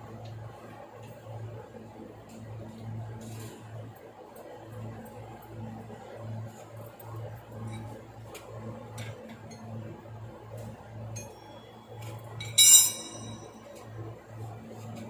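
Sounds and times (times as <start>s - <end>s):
metallic clink: 12.4s - 13.5s.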